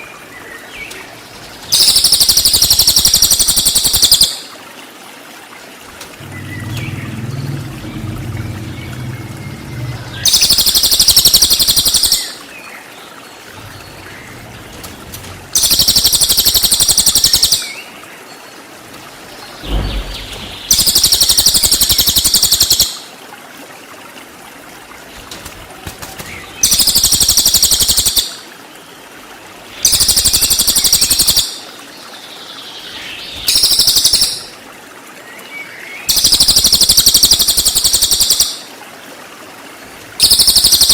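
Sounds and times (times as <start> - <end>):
high rapid bird song bursts: 0.8 - 4.4, 8.7 - 12.6, 13.4 - 17.9, 19.4 - 23.0, 25.2 - 28.4, 33.1 - 34.5, 40.2 - 40.9.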